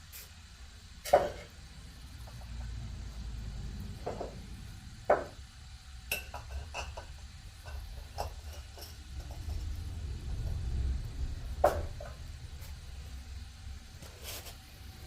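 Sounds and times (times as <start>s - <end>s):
steady low rumble: 1.7s - 6.1s, 7.2s - 14.0s.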